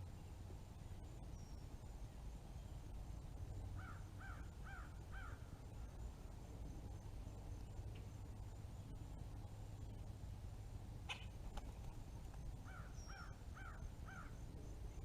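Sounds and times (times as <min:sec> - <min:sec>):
woodpecker fledgling calling: 0:03.8 - 0:05.5, 0:12.6 - 0:14.4.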